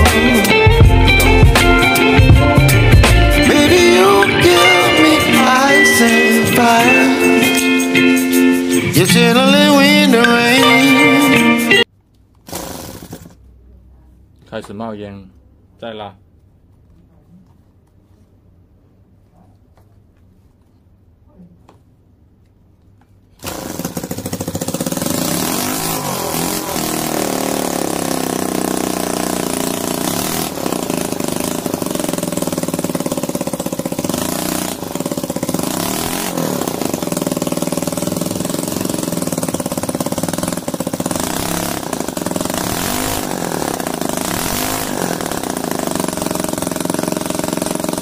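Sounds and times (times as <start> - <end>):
model engine running fast: 23.4 - 48.0.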